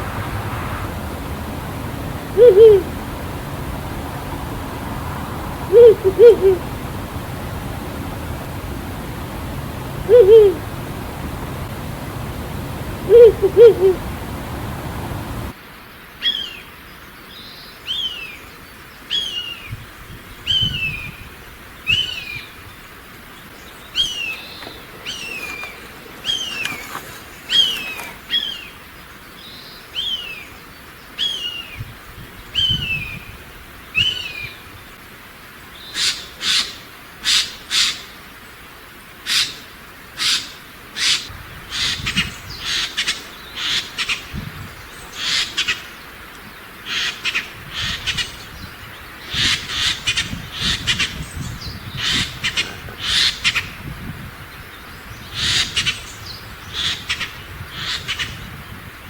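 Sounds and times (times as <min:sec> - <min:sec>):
bird short falling high calls: 0:00.0 - 0:04.2, 0:07.9 - 0:15.5, 0:23.9 - 0:28.8
bird harsh rasping calls: 0:23.9 - 0:28.6.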